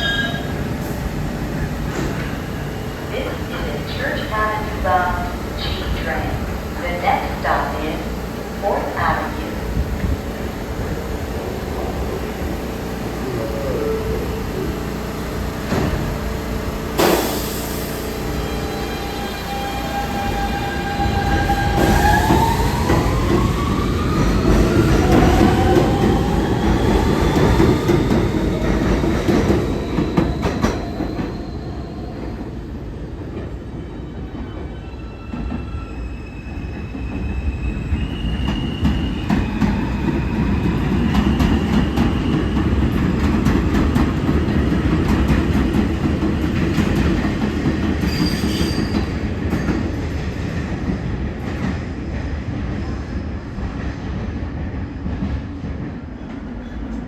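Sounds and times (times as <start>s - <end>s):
wheels rumbling on rail: 0.0s - 34.6s.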